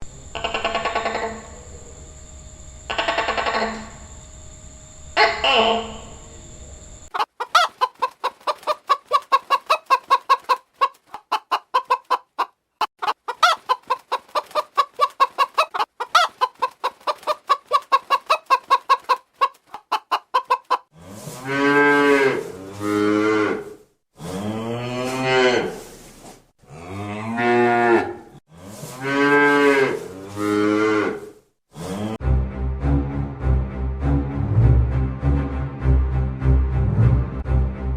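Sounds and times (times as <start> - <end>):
chicken clucking: 0.3 - 1.6, 2.9 - 4.0, 7.1 - 20.9
cow mooing: 21.0 - 25.8, 26.7 - 31.3.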